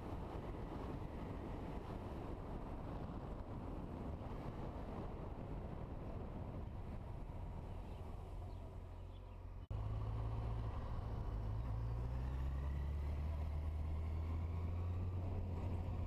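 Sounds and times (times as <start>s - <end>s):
wind noise: 0.0s - 8.9s.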